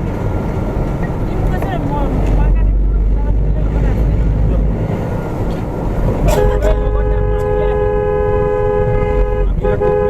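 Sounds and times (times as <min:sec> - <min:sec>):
engine and road rumble: 0:00.0 - 0:10.0
vehicle horn blaring: 0:06.2 - 0:10.0.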